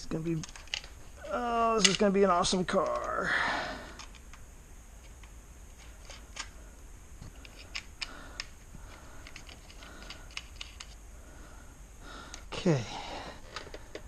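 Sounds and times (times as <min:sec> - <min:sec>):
small parts clicking and tapping: 0:00.3 - 0:03.2, 0:03.9 - 0:06.6, 0:07.2 - 0:11.0, 0:13.4 - 0:14.0.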